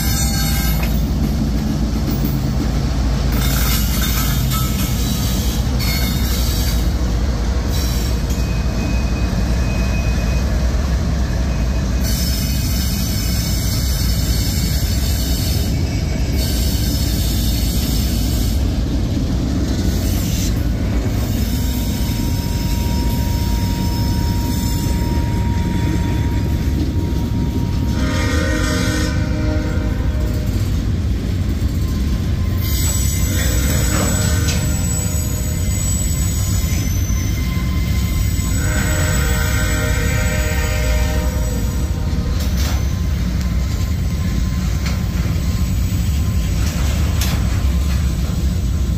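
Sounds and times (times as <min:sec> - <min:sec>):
diesel locomotives rumbling: 0:00.0 - 0:48.9
freight cars rolling on rails: 0:00.0 - 0:48.9
thin wheel squeal: 0:03.4 - 0:06.9, 0:32.3 - 0:40.4.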